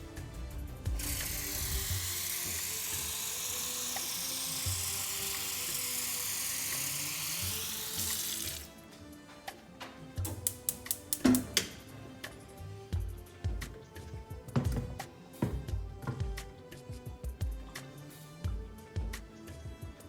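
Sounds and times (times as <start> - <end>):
soft background music: 0.0 - 20.0
water running from a tap: 1.0 - 8.7.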